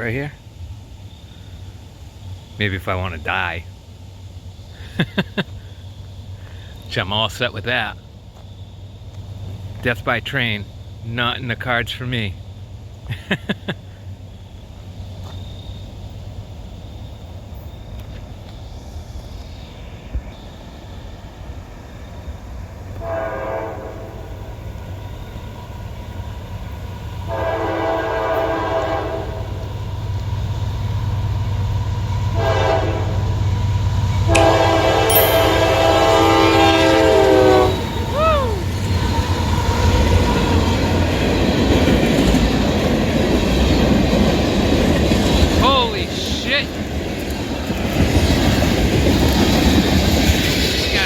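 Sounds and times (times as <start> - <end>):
train rumble and wheel noise: 0.0 - 51.0
locomotive air horn blasts: 23.0 - 24.3, 27.3 - 29.6, 32.4 - 33.5, 34.3 - 37.8.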